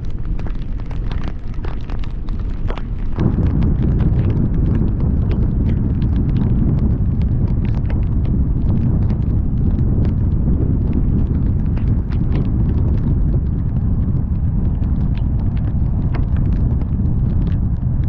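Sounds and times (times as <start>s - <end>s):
raindrops ticking on microphone: 0.0s - 18.0s
road and wind noise: 0.0s - 18.0s.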